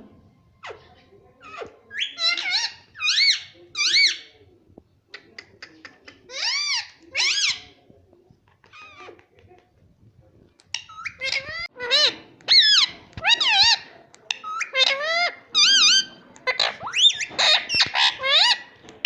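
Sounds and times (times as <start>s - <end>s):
parakeet squawking: 0.6s - 4.3s, 10.7s - 18.7s.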